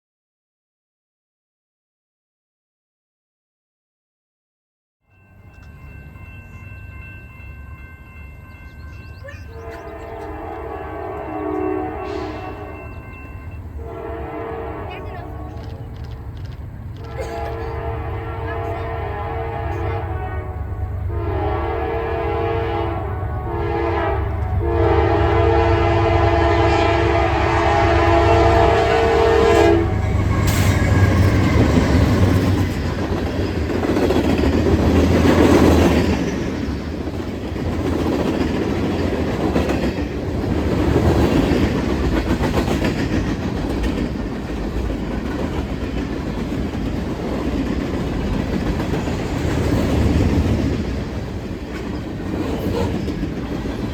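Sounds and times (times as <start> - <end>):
train rumbling past: 5.1 - 53.9
locomotive air horn blasts: 9.6 - 12.9, 13.8 - 15.8, 17.0 - 32.2
wheels clacking on rail joints: 30.2 - 53.9.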